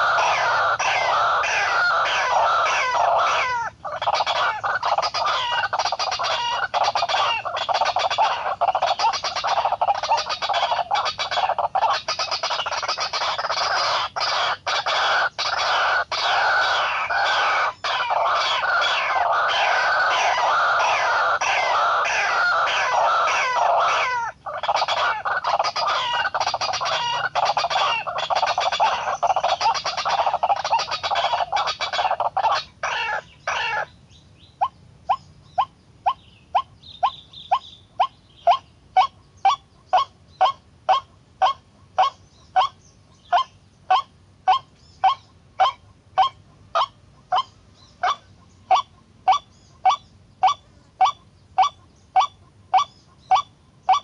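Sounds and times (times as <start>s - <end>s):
bird croaking calls: 0.0s - 54.0s.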